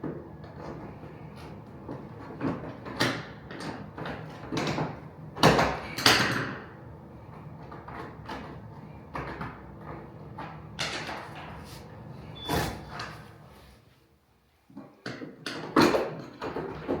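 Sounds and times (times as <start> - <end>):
planks sliding scrapes: 11.2 - 13.5.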